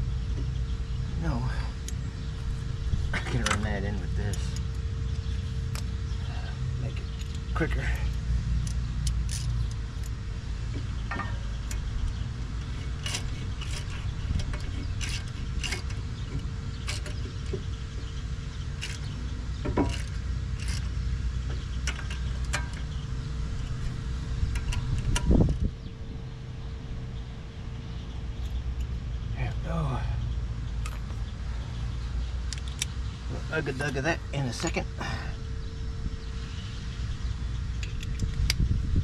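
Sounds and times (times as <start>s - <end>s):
steady low hum: 0.0s - 39.0s
metal tools clinking and rattling: 3.1s - 5.9s, 11.1s - 17.7s, 18.7s - 21.0s, 21.6s - 25.6s.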